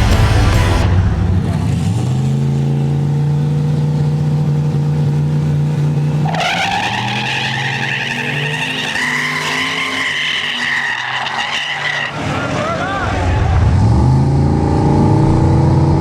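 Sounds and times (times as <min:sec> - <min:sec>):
car engine at steady revs: 0:00.0 - 0:09.8, 0:12.6 - 0:16.0
tires squealing: 0:06.1 - 0:14.0.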